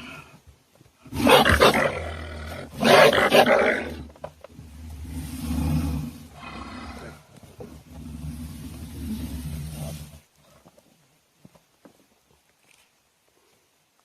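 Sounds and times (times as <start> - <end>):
animal roars: 1.1 - 10.2
low rumbling growl: 1.8 - 10.3.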